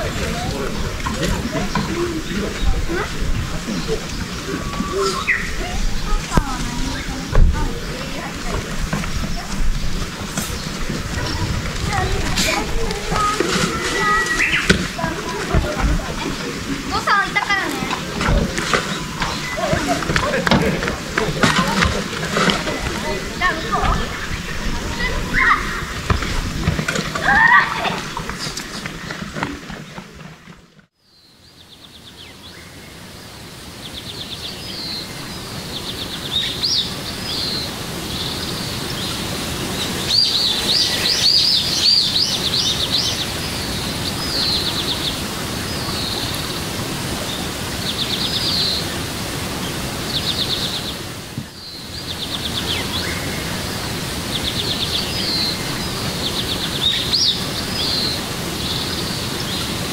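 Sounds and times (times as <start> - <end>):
small birds chirping: 0.0 - 26.8, 31.0 - 59.9
steady background hiss: 31.0 - 59.9.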